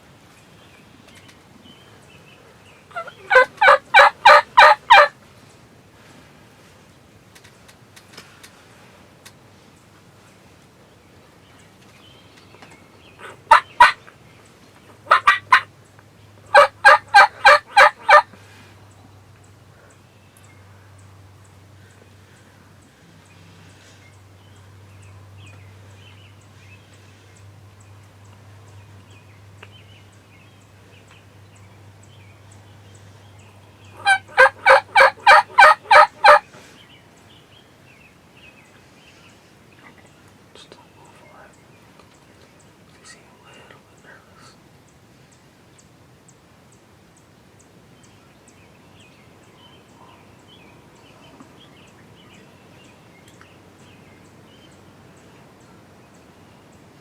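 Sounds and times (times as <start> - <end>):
turkey yelps: 2.9 - 5.1, 13.2 - 14.0, 15.1 - 15.7, 16.5 - 18.3, 34.0 - 36.4.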